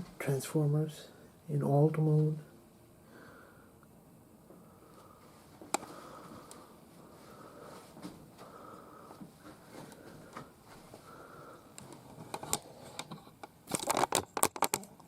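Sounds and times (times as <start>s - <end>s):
sharp clicks and knocks: 11.8s - 15.0s.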